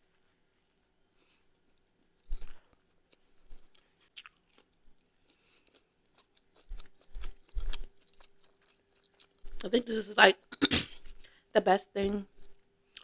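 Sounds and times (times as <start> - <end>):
person chewing food: 1.2 - 9.7, 12.3 - 13.0.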